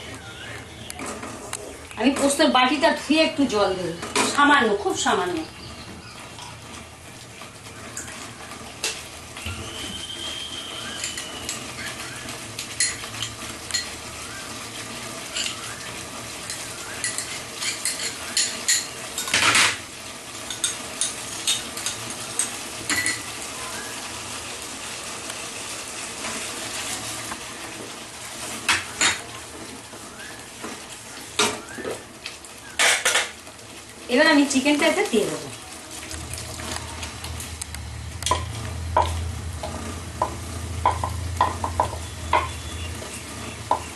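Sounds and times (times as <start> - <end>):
steady sizzle: 0.0 - 43.9.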